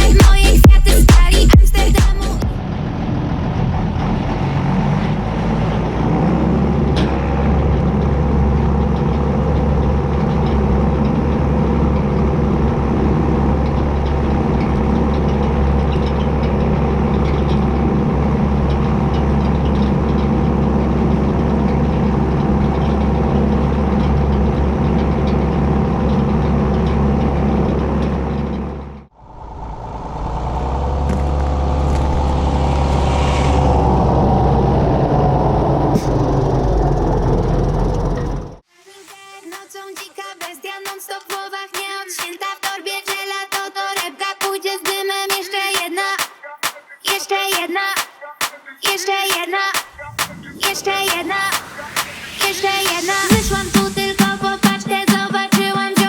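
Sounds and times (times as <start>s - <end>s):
tractor diesel engine under load: 0.0s - 38.6s.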